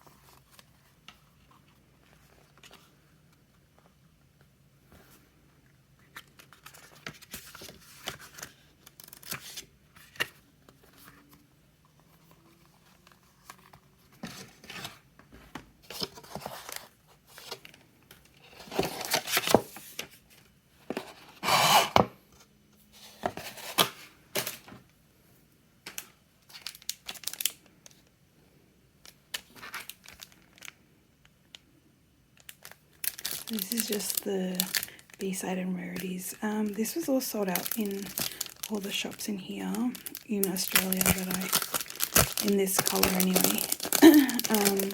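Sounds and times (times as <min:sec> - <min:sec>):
packaging tearing and rustling: 0:06.1 - 0:10.4, 0:18.5 - 0:20.1, 0:26.5 - 0:27.6, 0:29.3 - 0:30.7, 0:32.4 - 0:35.1, 0:36.6 - 0:44.9.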